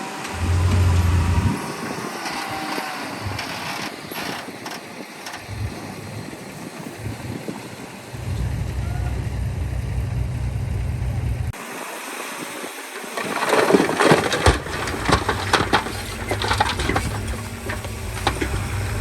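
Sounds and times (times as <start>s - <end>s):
diesel engine running: 0.0s - 11.6s, 14.3s - 19.0s
dirt and rocks crunching: 0.3s - 1.6s, 2.4s - 7.4s, 13.0s - 19.0s.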